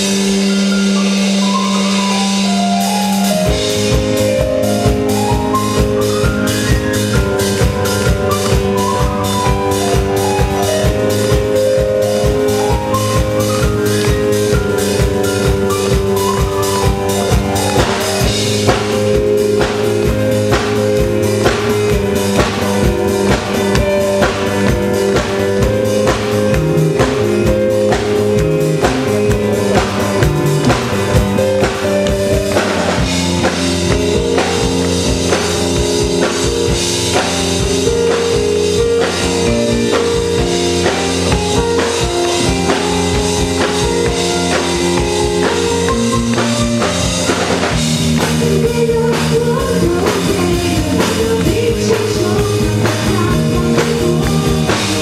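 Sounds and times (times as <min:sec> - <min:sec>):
bass: 0:00.0 - 0:55.0
drum kit beat: 0:00.0 - 0:55.0
keyboard chords: 0:00.0 - 0:55.0
person singing: 0:48.2 - 0:55.0.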